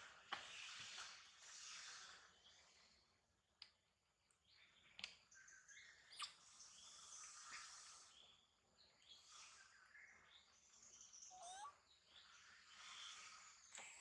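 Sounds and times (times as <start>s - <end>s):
bird chirps: 4.4s - 14.0s.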